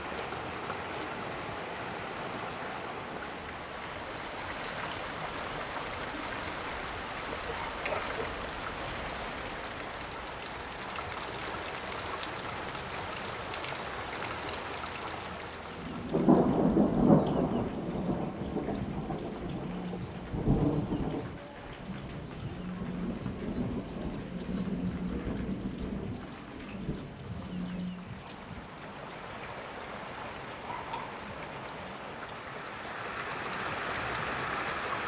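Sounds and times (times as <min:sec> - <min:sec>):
steady rain falling: 0:00.0 - 0:35.0
thunder rumbling: 0:15.8 - 0:28.7.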